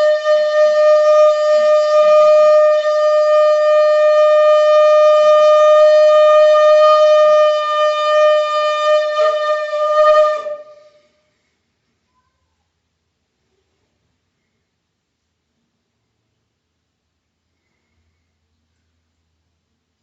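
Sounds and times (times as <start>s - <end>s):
conch shell blown: 0.0s - 11.3s.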